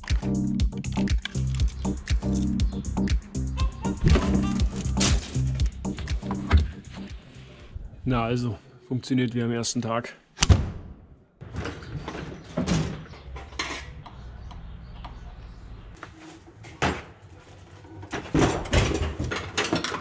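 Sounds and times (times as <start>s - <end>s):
metal tools clanking and knocking: 11.5s - 14.1s, 18.1s - 20.0s.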